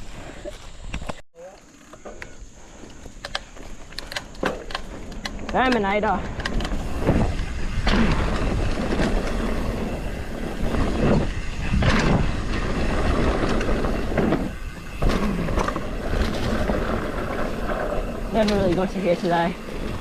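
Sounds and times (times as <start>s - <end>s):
bike tyre noise: 0.0s - 20.0s
bike knocks and rattles: 2.8s - 20.0s
wind rush on microphone: 5.3s - 20.0s.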